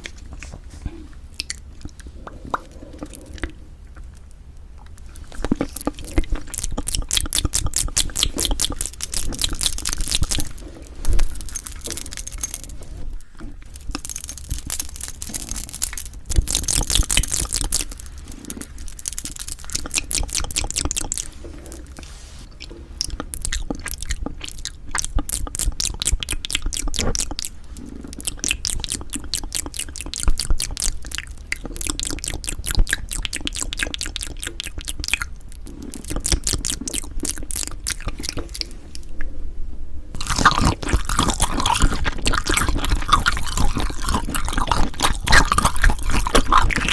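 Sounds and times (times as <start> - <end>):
person chewing food: 0.0 - 39.3, 40.1 - 46.9.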